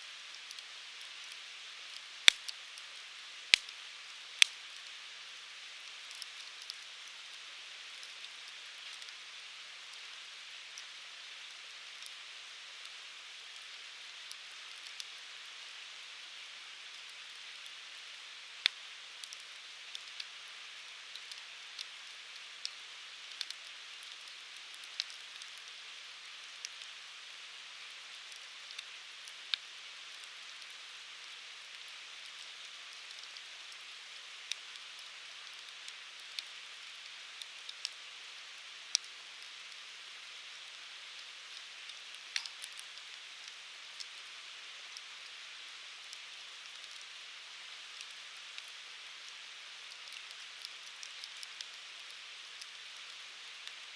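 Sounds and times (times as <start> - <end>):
firewood crackling and popping: 0.4 - 4.9, 5.8 - 9.2, 16.9 - 27.0, 28.1 - 30.9, 31.7 - 40.5, 41.2 - 44.3, 46.0 - 47.1, 47.8 - 53.9.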